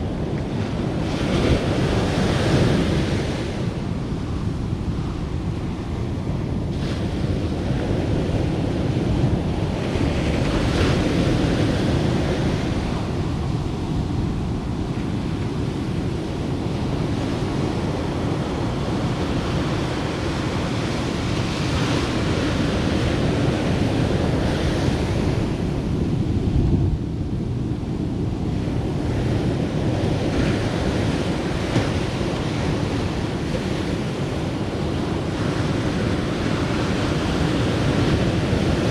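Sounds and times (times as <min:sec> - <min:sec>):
surf breaking on a beach: 0:00.0 - 0:38.9
wind buffeting microphone: 0:00.0 - 0:38.9.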